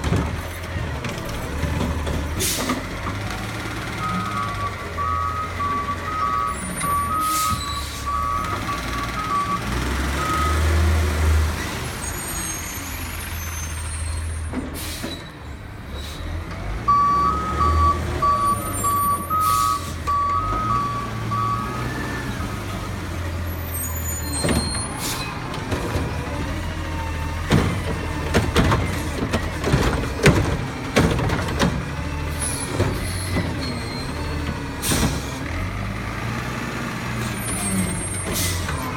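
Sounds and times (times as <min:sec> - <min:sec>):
garbage truck diesel engine: 0:00.0 - 0:38.9
reversing beeper: 0:04.0 - 0:10.9, 0:16.9 - 0:22.5
knocks and bangs: 0:27.4 - 0:32.0.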